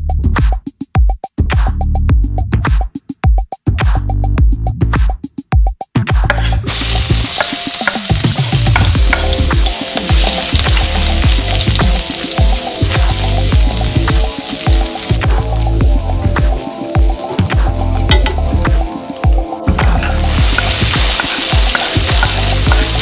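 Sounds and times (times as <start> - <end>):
electronic music: 6.1 - 23.0
garlic sizzling in hot oil: 6.7 - 23.0.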